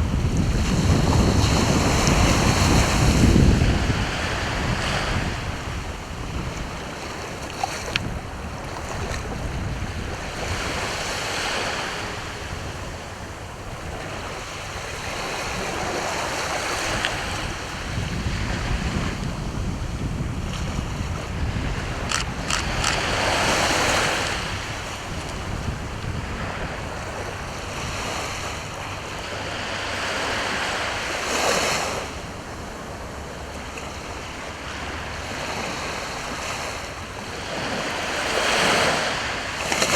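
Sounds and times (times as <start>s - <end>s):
sea waves breaking on shore: 0.0s - 39.9s
wind on microphone: 0.0s - 39.9s
brief clicks: 22.1s - 23.0s.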